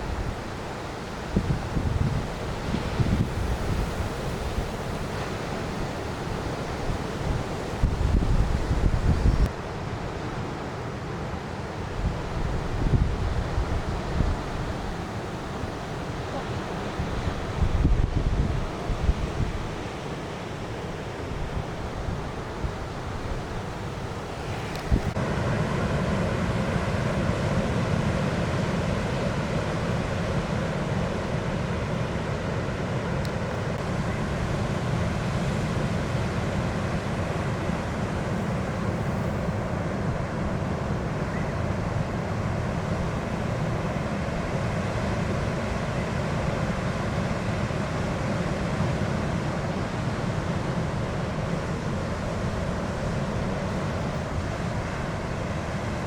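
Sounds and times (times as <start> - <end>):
wind rumble on microphone: 0.0 - 9.5, 11.9 - 20.0, 21.2 - 25.4
ocean surf: 0.0 - 56.0.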